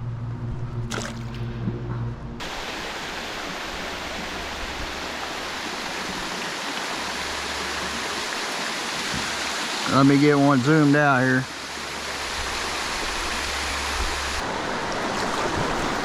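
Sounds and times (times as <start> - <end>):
low steady hum: 0.0 - 6.2
river water rushing: 2.4 - 16.0.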